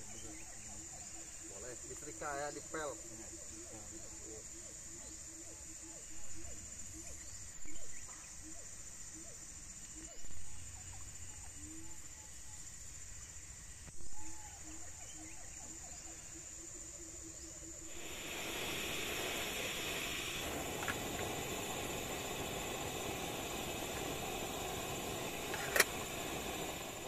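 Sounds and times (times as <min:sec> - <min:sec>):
steady rushing hiss: 0:00.0 - 0:14.0, 0:16.1 - 0:27.0
insects buzzing: 0:00.0 - 0:27.0
animal repeating low call: 0:14.2 - 0:27.0.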